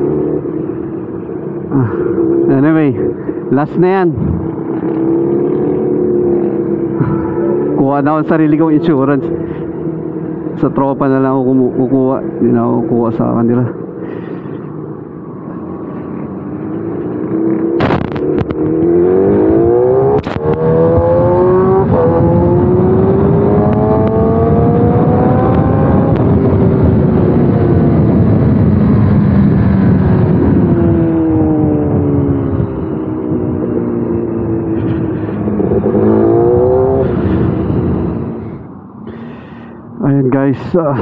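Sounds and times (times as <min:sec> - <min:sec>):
motorcycle engine revving through gears: 0:00.0 - 0:10.8, 0:14.1 - 0:39.7
wind noise: 0:04.1 - 0:04.7, 0:17.6 - 0:39.3.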